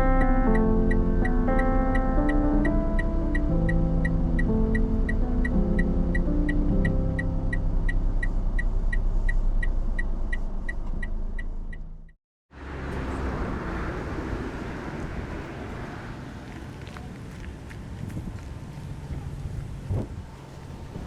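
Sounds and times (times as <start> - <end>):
car engine rumble: 0.0 - 21.0
rushing wind noise: 17.8 - 21.0.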